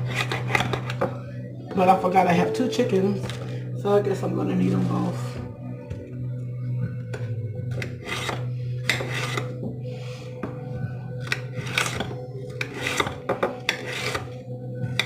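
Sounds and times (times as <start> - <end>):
scraping and rubbing strokes: 0.0 - 1.0, 7.8 - 10.3, 11.5 - 14.4.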